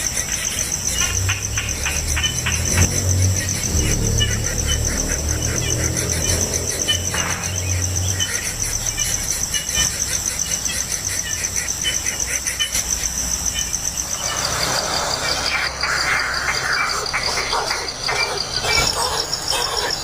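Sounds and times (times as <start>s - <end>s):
insects trilling: 0.0s - 20.0s
short insect chirps: 7.0s - 20.0s.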